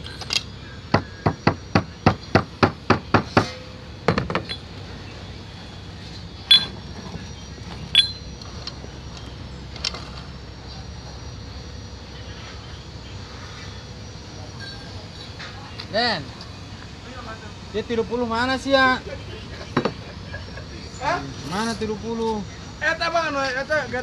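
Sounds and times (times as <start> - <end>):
hammer striking steel: 0.0 - 4.8, 6.5 - 6.8, 7.9 - 8.3.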